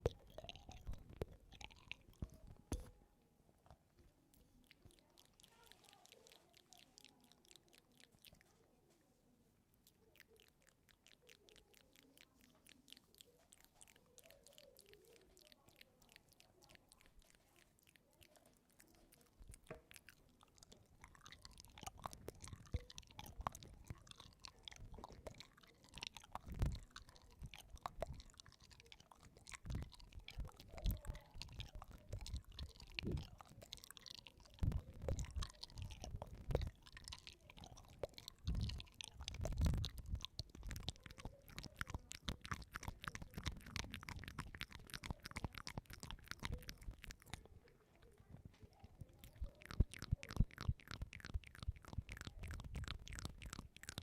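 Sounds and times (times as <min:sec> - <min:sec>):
chewing and crunching food: 0:00.0 - 0:54.0
jaw clicks and thuds: 0:19.4 - 0:47.5.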